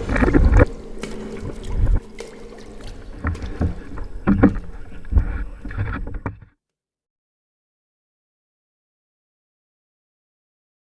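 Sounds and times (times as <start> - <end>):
paddle splashes and knocks: 0.0 - 6.4.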